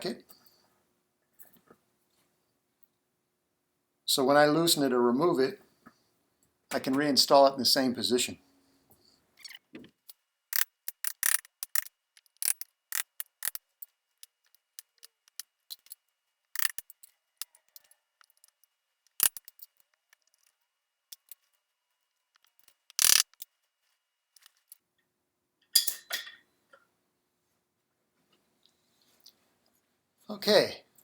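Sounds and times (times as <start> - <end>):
hand tool clicking and snipping: 10.1 - 16.0, 16.6 - 21.5, 22.3 - 23.5.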